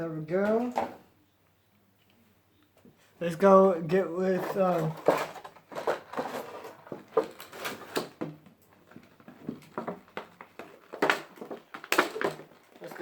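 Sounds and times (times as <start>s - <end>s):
plastic packaging rustling: 4.1s - 13.0s.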